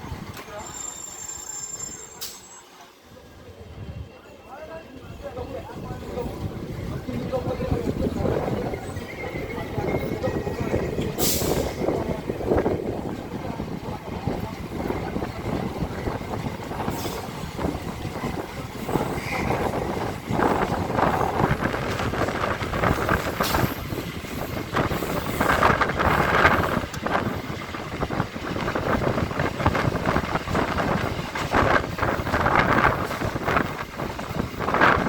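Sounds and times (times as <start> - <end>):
train running noise: 0.0 - 35.0
train wheels clattering over rail joints: 9.7 - 35.0.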